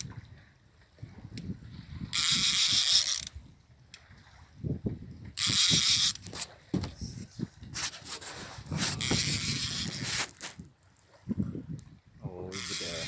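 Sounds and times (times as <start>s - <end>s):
fishing reel ratcheting: 2.1s - 3.5s, 5.4s - 6.4s, 8.9s - 10.4s, 12.5s - 13.0s
soft knocks: 6.7s - 7.0s.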